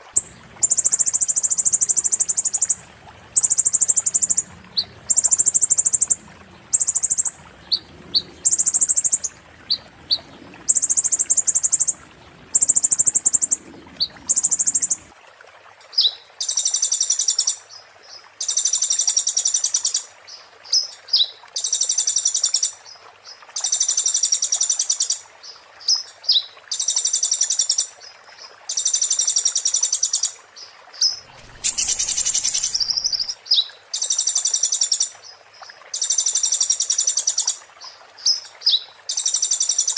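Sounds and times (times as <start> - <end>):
rustle: 0.0 - 39.9
bird singing buzzy trills: 31.0 - 33.6
bird chips: 31.4 - 33.3.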